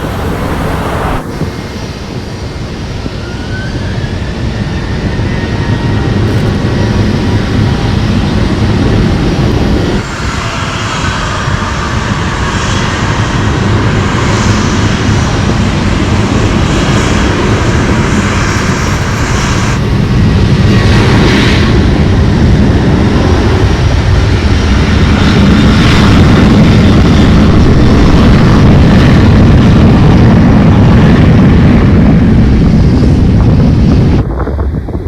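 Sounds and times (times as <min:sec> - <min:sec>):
airliner engines rumbling: 0:00.0 - 0:35.0.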